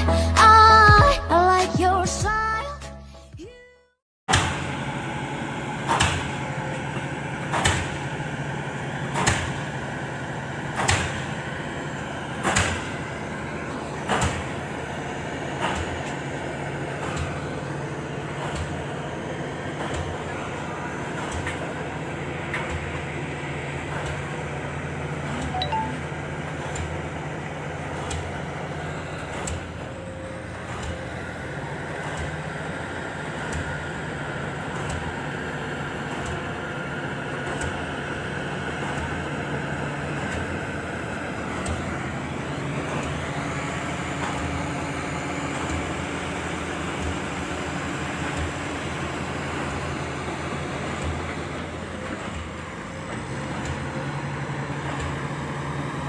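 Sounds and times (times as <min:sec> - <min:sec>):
higher tone sliding in pitch: 0:25.6 - 0:26.1
excavator diesel engine droning: 0:35.2 - 0:56.0.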